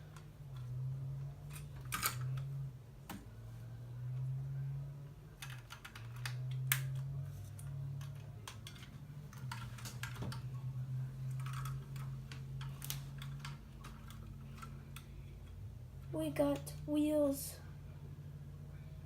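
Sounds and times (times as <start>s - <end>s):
low steady hum: 0.0s - 19.0s
plastic pieces clicking together: 5.4s - 10.5s, 11.3s - 15.6s.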